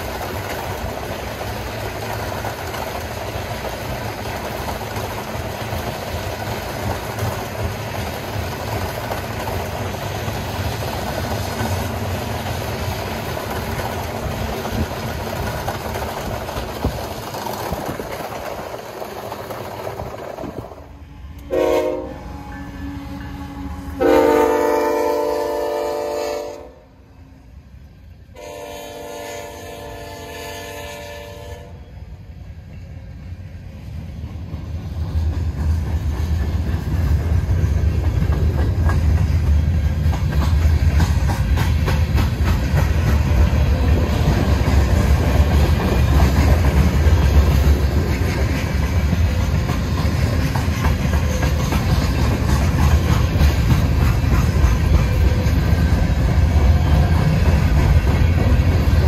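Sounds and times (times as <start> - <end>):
wheels clacking over rail joints: 0.0 - 20.9, 34.2 - 59.0
freight train rumble: 0.0 - 59.0
locomotive air horn blasts: 21.0 - 27.0, 28.4 - 31.8.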